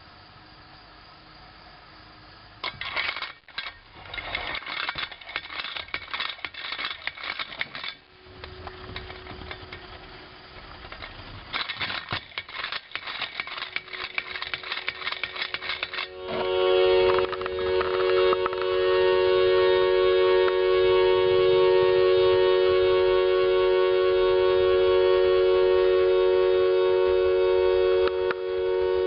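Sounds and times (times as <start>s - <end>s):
tin top rattling: 2.6s - 16.1s
spinning top humming: 2.6s - 24.8s.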